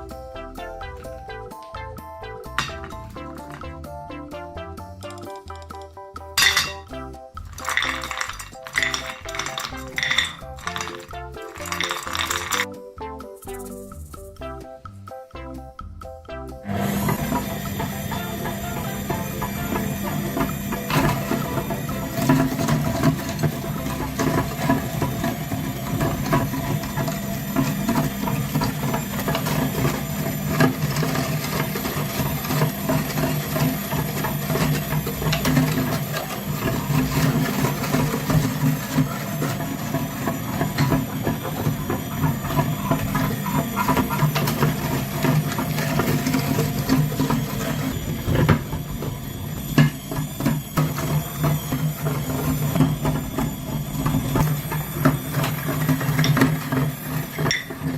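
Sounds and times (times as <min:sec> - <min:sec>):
rattling and knocking clicks: 0:02.5 - 0:03.8, 0:05.0 - 0:12.8, 0:16.8 - 0:57.9
small motor running: 0:16.7 - 0:57.9.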